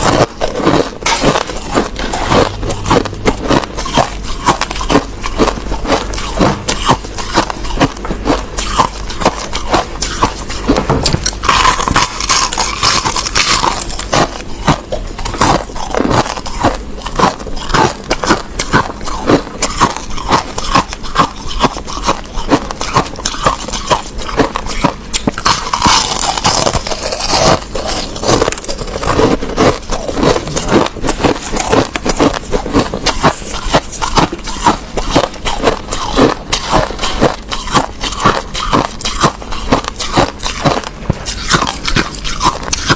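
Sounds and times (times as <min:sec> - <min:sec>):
crushed ice being chewed: 0:00.0 - 0:42.9.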